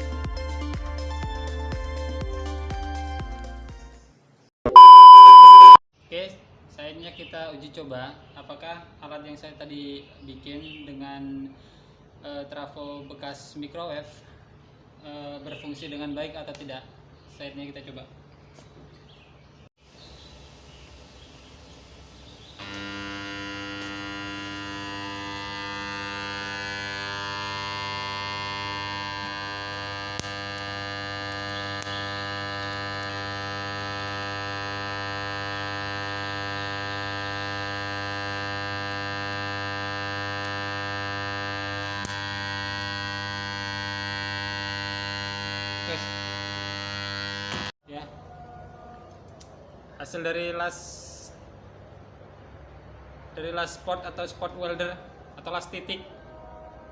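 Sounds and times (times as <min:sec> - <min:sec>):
spot welder transformer humming: 0:20.4 - 0:47.8.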